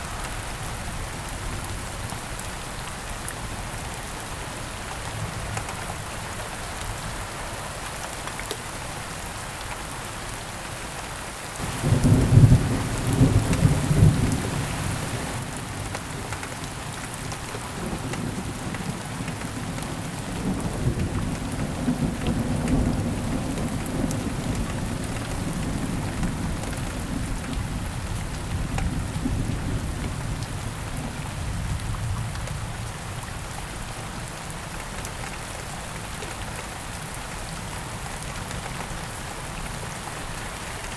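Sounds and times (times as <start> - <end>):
steady rain falling: 0.0 - 40.9
low rolling thunder: 11.6 - 15.5.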